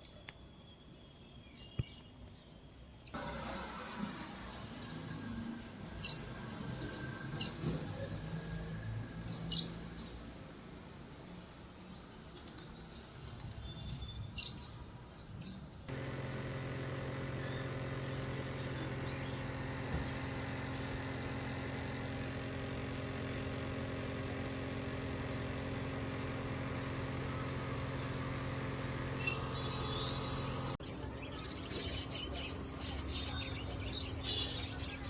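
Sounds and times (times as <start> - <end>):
bird chirps: 0.0 - 3.2, 4.7 - 10.3, 11.6 - 15.8, 29.2 - 35.0
machine hum: 3.1 - 30.8.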